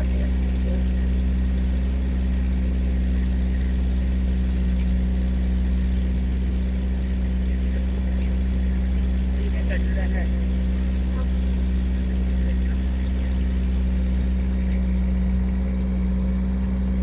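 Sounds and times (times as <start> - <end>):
motorboat engine running: 0.0 - 17.0.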